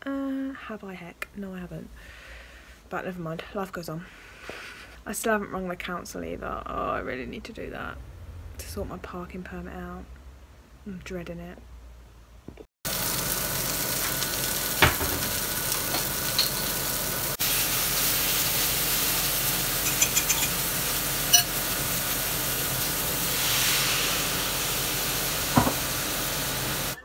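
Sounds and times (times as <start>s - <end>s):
food sizzling in frying pan: 12.9s - 27.0s
spatula knocking on pan: 25.6s - 25.8s.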